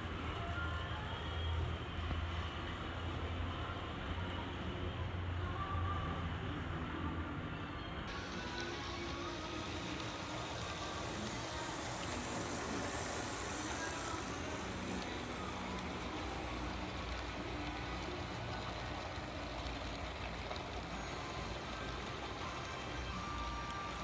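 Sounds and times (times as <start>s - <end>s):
model trains rolling: 8.1s - 24.0s.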